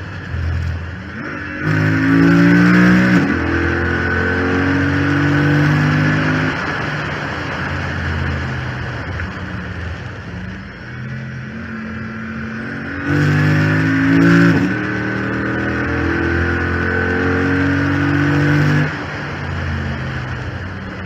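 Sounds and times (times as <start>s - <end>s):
car engine revving: 0.0s - 21.0s
steady whine: 0.0s - 21.0s.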